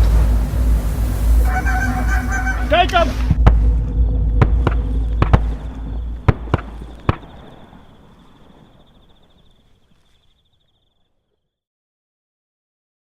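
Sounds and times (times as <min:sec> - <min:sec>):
shotgun shots: 0:06.2 - 0:08.6.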